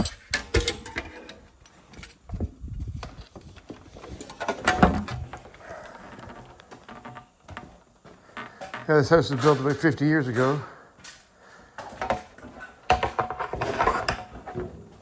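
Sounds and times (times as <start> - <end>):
hand tools clattering: 0.0 - 2.4, 3.0 - 15.0.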